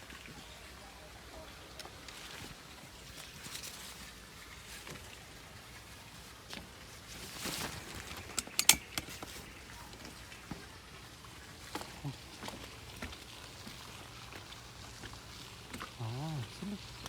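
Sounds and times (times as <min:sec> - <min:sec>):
rain pattering: 0:09.0 - 0:17.0.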